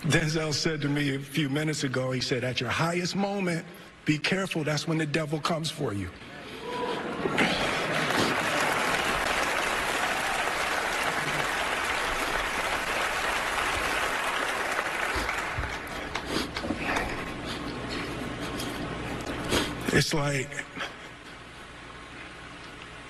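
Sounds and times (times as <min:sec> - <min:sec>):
audience applauding: 0:07.2 - 0:16.4.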